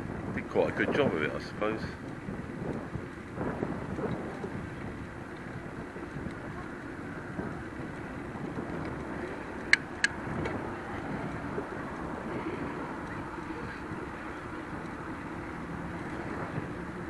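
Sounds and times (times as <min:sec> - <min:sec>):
bicycle tyres rumbling: 0:00.0 - 0:17.0
wind on microphone: 0:00.0 - 0:17.0
sharp clicks: 0:09.6 - 0:10.6.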